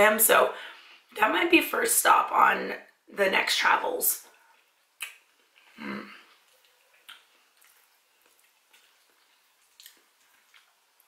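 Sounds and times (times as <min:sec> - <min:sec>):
mouth chewing food: 0:04.3 - 0:11.0.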